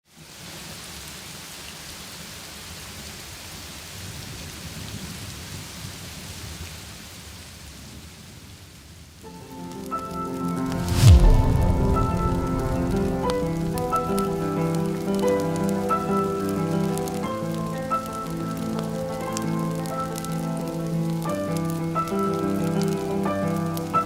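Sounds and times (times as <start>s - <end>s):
steady rain: 0.0s - 24.0s
music with sustained notes: 9.3s - 24.0s
thunder rumbling: 10.6s - 19.2s.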